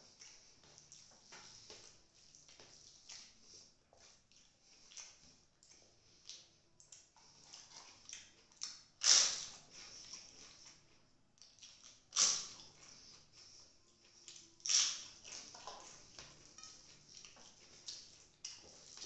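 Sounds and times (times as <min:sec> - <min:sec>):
wet chewing and smacking: 0:00.0 - 0:19.0
crisp crunch of papad: 0:09.0 - 0:09.8.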